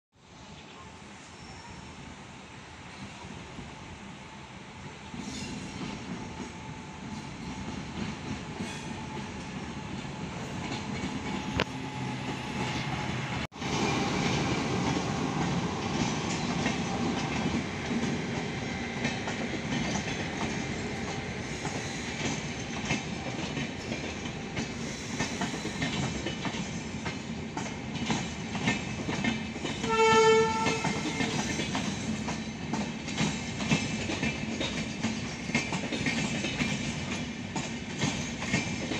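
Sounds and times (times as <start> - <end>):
train wheels clattering: 4.8 - 38.9
train horn: 29.8 - 31.4.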